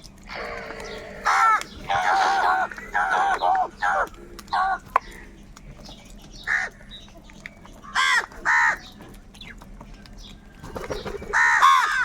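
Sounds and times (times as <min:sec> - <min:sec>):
crows cawing: 0:00.3 - 0:05.2, 0:06.4 - 0:06.8, 0:07.8 - 0:08.9, 0:11.3 - 0:12.0.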